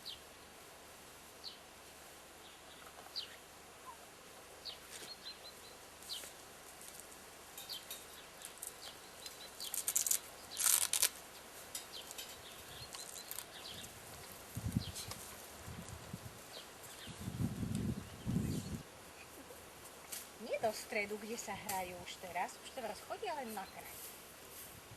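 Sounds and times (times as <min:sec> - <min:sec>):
small birds chirping: 0:02.4 - 0:24.1
rustling bursts: 0:08.4 - 0:18.0.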